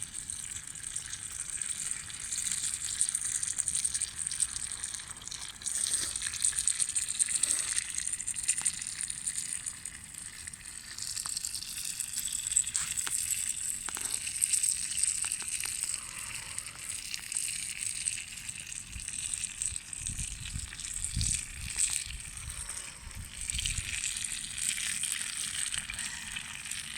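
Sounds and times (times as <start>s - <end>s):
food sizzling in a pan: 0.0s - 18.8s.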